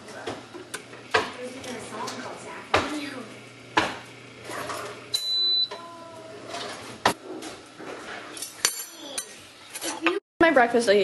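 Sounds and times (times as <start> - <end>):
high electronic appliance beep: 5.1 - 5.8.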